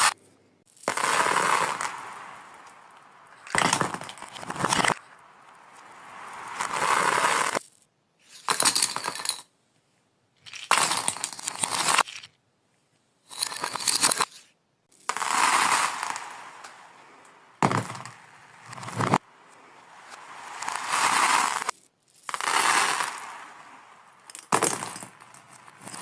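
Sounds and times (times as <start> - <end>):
glass marbles rolling on track: 0.7 - 9.5, 10.4 - 12.3, 13.3 - 14.3, 14.9 - 16.9, 19.9 - 26.0.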